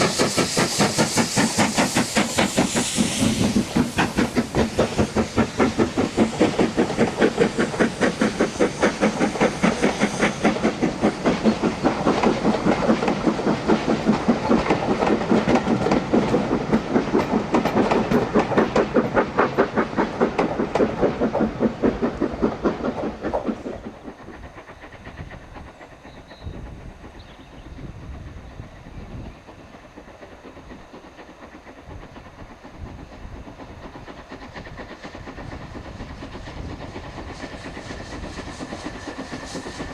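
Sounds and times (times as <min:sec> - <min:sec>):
steam locomotive exhaust beats: 0:00.0 - 0:39.9
train rumble: 0:00.0 - 0:39.9.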